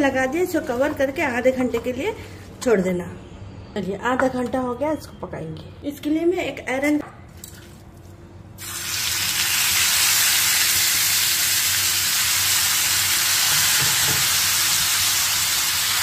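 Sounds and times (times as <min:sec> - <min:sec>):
meat sizzling in hot oil: 0:08.6 - 0:16.0.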